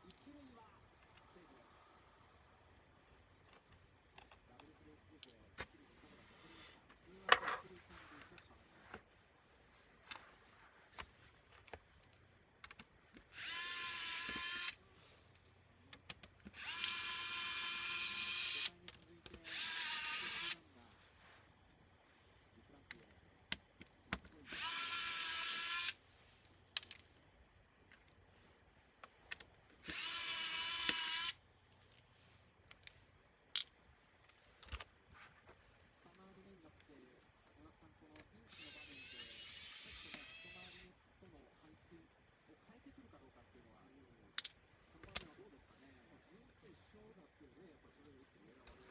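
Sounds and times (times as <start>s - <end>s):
screws and parts clicking: 11.7s - 20.6s, 23.5s - 27.3s, 29.0s - 34.9s, 38.2s - 40.8s
electric screwdriver whine: 13.3s - 14.8s, 16.5s - 18.7s, 19.4s - 20.6s, 24.5s - 26.0s, 29.8s - 31.4s, 38.5s - 40.8s.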